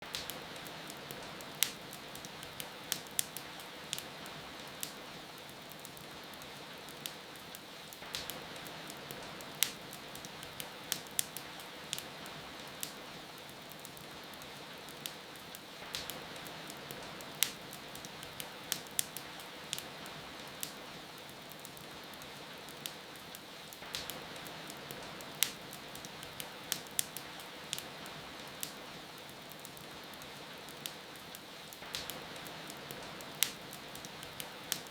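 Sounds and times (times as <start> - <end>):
wood fire crackling: 0.0 - 34.9.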